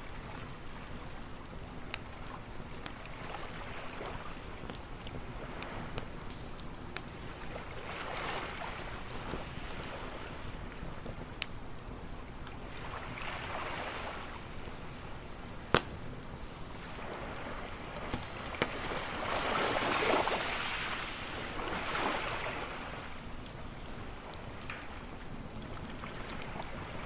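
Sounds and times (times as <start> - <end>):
campfire crackling pops: 0.0 - 27.0
waves washing onto shore: 7.1 - 11.2, 12.6 - 15.1, 16.6 - 27.0.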